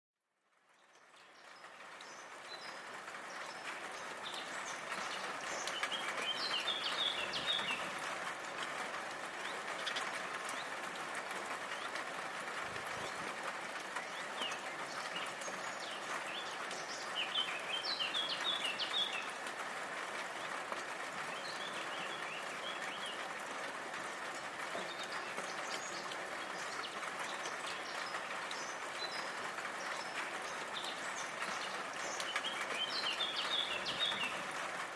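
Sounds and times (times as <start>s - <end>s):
steady rain falling: 0.3s - 34.9s
small birds chirping: 0.8s - 8.0s, 14.0s - 19.4s, 21.3s - 23.3s, 24.1s - 34.6s.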